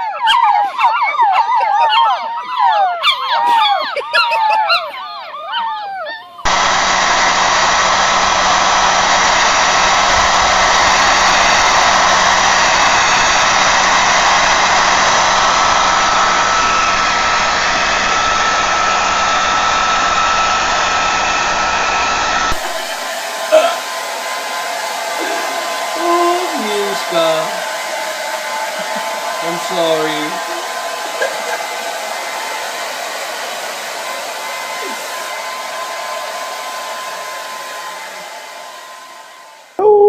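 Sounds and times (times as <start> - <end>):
small blower whirring: 6.4 - 39.8.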